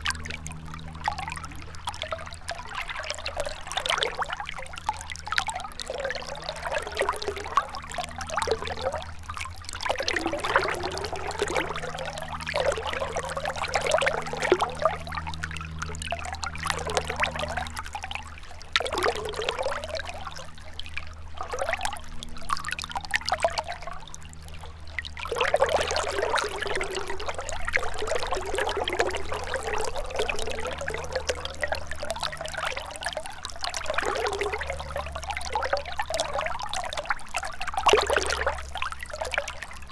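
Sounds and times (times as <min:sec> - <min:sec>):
river water trickling: 0:00.0 - 0:39.9.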